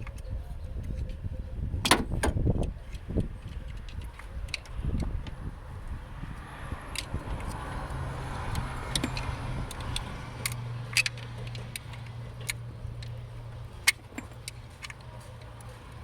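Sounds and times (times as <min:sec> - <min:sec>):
car engine humming: 0:02.0 - 0:16.0
metallic clinks and ticks: 0:08.5 - 0:15.8.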